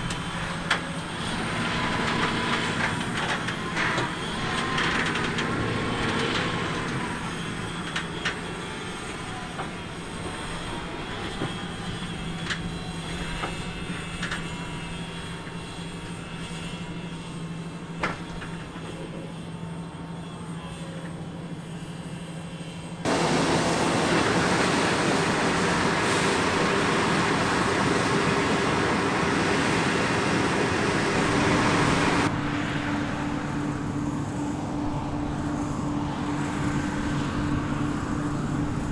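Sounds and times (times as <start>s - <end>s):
harvest machine engine hum: 0.0s - 38.9s
loud rushing machine noise: 23.1s - 32.3s.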